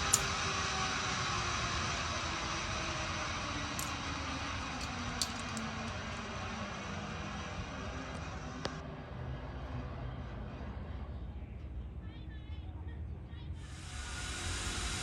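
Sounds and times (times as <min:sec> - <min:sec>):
trolley running along cable: 0:00.0 - 0:12.0
sharp clicks: 0:04.7 - 0:06.0.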